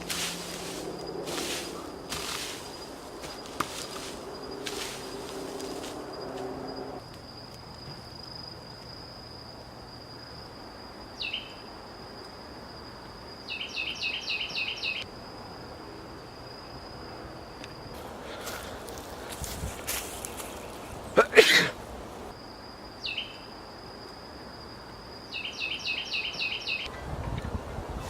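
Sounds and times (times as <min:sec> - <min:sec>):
insect high-pitched buzz: 0:00.0 - 0:26.9
bird chirping: 0:11.2 - 0:11.7, 0:13.4 - 0:15.0, 0:23.0 - 0:23.5, 0:25.3 - 0:26.9.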